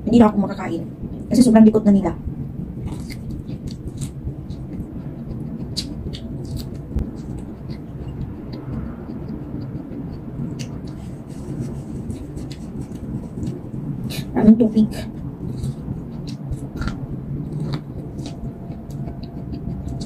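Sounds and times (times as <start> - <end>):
steady low rumble: 0.0 - 20.0
chewing corn crunching: 2.8 - 14.3, 15.0 - 20.0.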